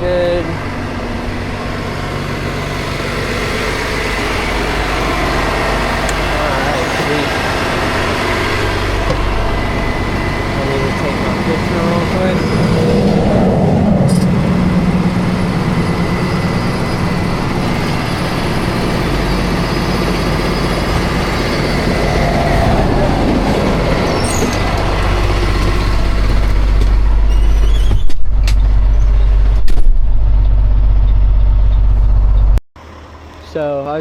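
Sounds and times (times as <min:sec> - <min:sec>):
highway traffic rushing past: 0:00.0 - 0:27.4
low engine hum: 0:00.0 - 0:33.8.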